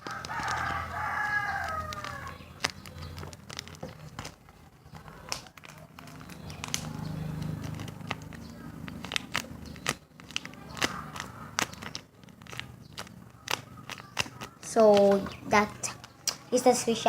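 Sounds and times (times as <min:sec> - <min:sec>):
rooster crowing: 0:00.0 - 0:02.4.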